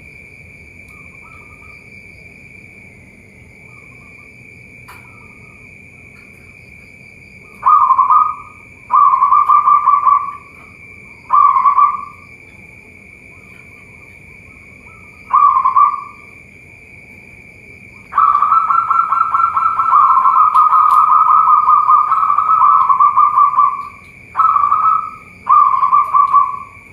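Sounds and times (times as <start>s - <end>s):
steady high whine: 0.0s - 26.9s
doves cooing in trilled bursts: 7.4s - 12.2s, 13.3s - 16.4s, 18.0s - 26.9s.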